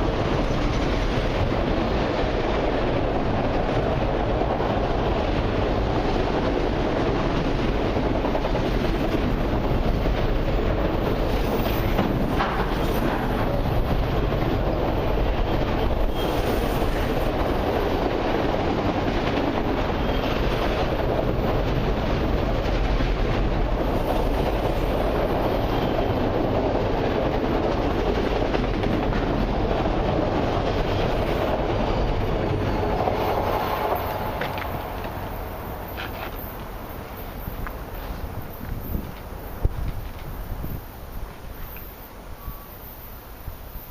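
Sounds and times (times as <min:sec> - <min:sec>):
steel wheels rumbling on rails: 0:00.0 - 0:43.9.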